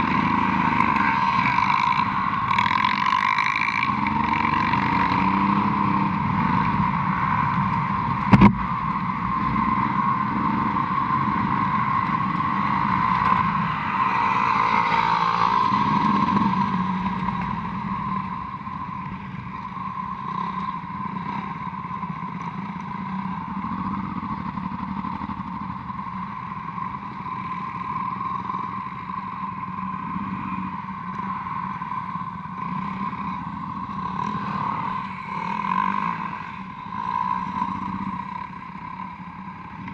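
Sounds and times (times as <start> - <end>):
motorcycle engine running: 0.0 - 39.9
sharp knock: 8.3 - 8.6.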